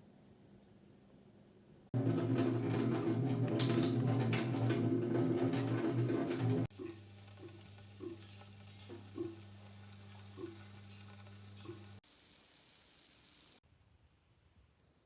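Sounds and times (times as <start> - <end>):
food sizzling in a pan: 6.7 - 13.6.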